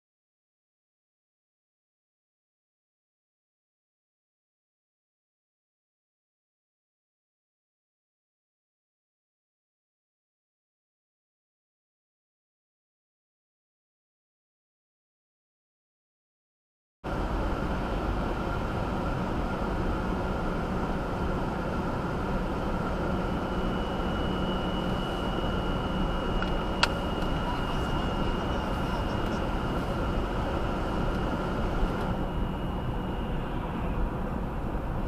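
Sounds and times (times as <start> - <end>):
high-pitched whine: 17.1 - 35.0
second higher whine: 21.9 - 35.0
car engine running: 22.4 - 32.9.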